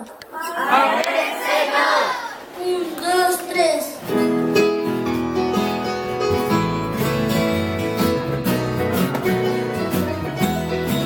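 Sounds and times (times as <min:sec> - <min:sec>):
acoustic guitar strumming: 0:04.0 - 0:11.0.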